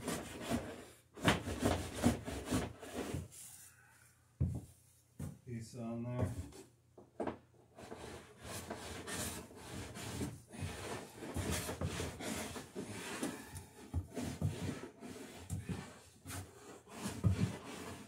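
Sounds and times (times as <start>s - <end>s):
hand tool scraping wood: 0.0s - 3.3s, 7.7s - 18.0s.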